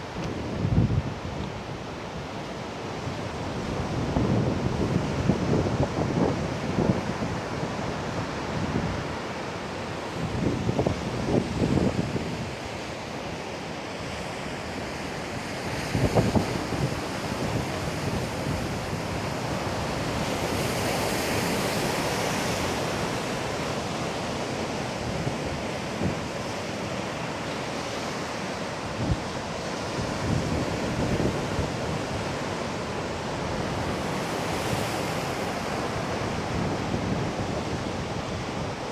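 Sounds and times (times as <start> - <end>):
wind buffeting microphone: 0.0 - 1.9
sea waves breaking on beach: 14.5 - 38.9.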